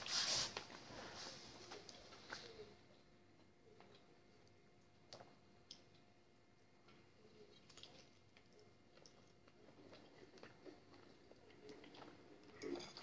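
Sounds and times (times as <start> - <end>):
person chewing fried chicken: 7.4 - 13.0.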